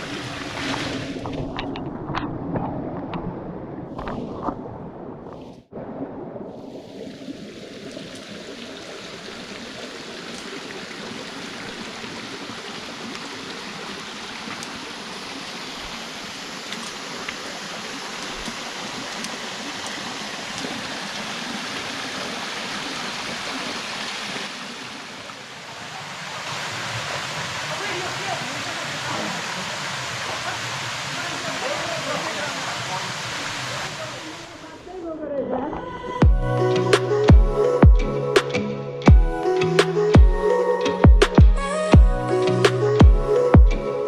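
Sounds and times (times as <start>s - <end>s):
stream water rushing over rocks: 0.0s - 3.3s, 6.7s - 35.2s.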